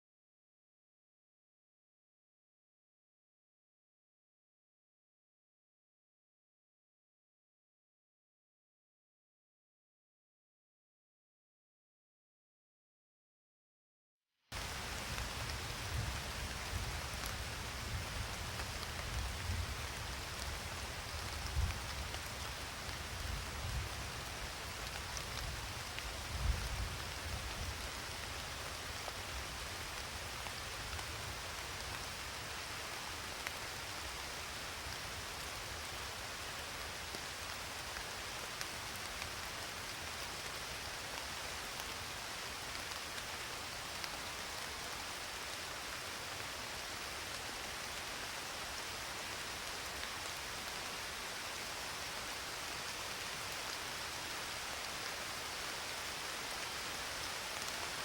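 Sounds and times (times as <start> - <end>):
steady rain falling: 14.5 - 58.0.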